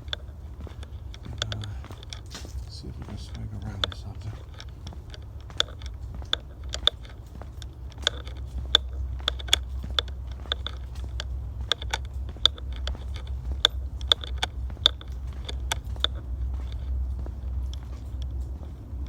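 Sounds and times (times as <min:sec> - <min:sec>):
footsteps crunching on trail: 0:00.0 - 0:19.0
low steady rumble: 0:00.0 - 0:19.0.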